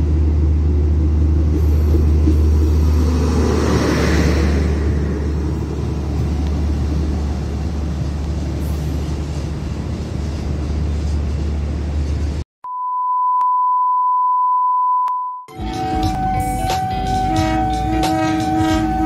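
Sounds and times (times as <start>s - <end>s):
train rumbling away: 0.0s - 12.4s, 15.5s - 19.0s
high beep tone: 12.6s - 19.0s.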